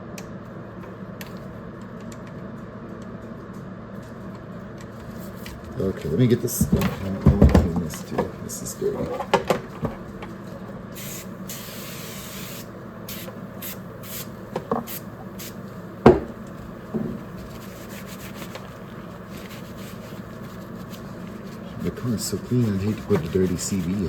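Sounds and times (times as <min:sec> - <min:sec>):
aerosol spray hissing: 0:11.0 - 0:16.4, 0:17.2 - 0:24.0
rubbing while wiping: 0:17.2 - 0:24.0.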